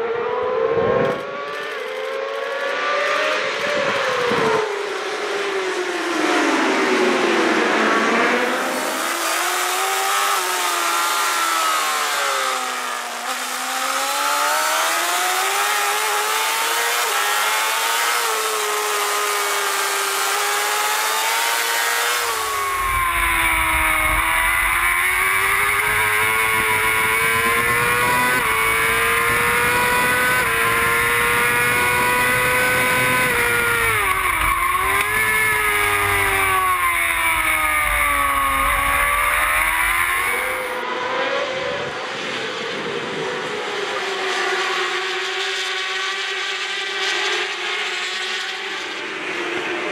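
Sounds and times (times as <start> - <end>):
racing motorcycle engine revving: 0.0 - 49.9
deeper engine rumble: 22.3 - 40.8.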